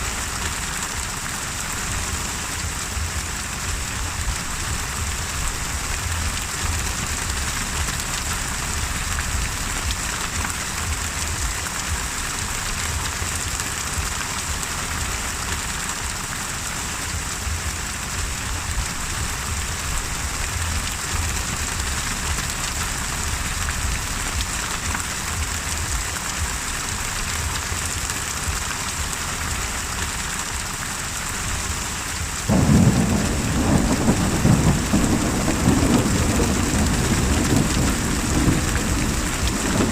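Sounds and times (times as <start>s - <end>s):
heavy rain hissing: 0.0s - 39.9s
thunder rumbling: 32.3s - 39.9s
loud roll of thunder: 32.5s - 39.9s.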